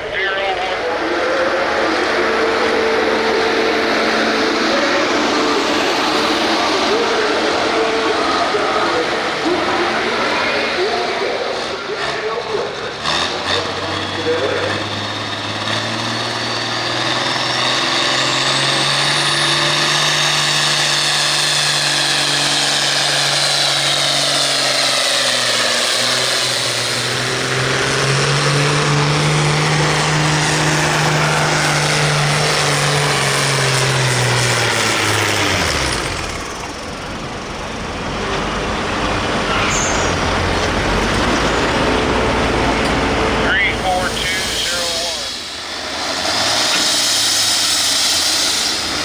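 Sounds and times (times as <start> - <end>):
tractor diesel engine under load: 0.0 - 49.0
high turbo whistle: 39.4 - 40.8, 43.5 - 49.0.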